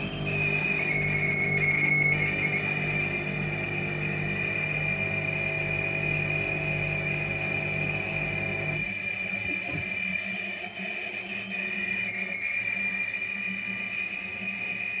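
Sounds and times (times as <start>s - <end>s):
high-pitched squeal: 0.0s - 6.0s
low motor hum: 0.0s - 8.9s.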